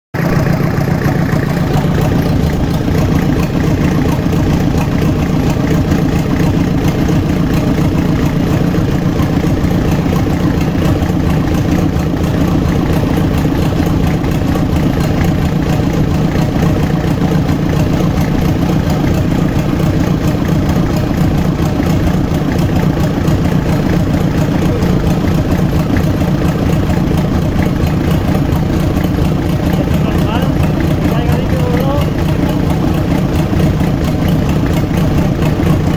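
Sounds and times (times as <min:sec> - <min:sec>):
diesel engine running: 0:00.1 - 0:35.9.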